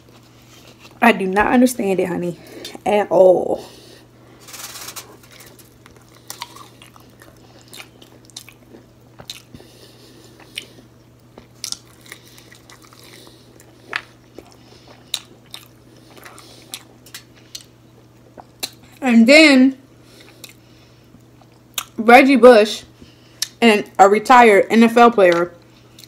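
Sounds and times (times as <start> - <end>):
crunching fried seafood: 4.4 - 9.7, 10.3 - 19.0.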